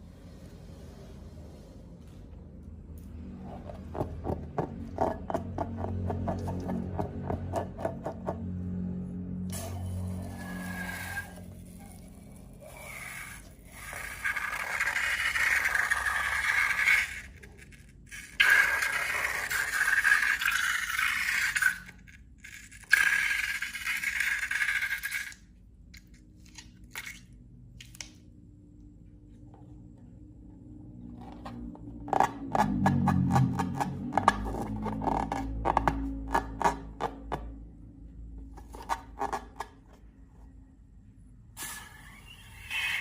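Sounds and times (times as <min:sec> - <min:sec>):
slime scraping: 0:38.5 - 0:40.0.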